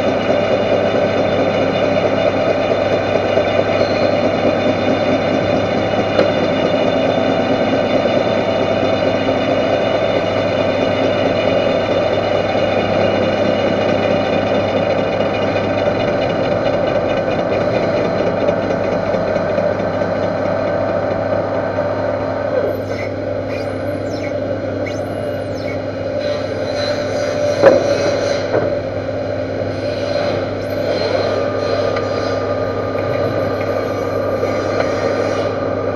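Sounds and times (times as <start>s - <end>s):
metal lathe running: 0.0s - 35.9s
faint high squeals: 22.7s - 27.4s.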